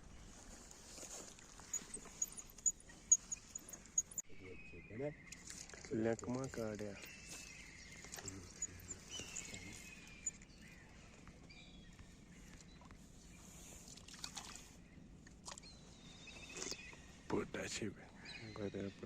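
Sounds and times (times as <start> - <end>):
bird whistled calls: 7.0 - 10.8.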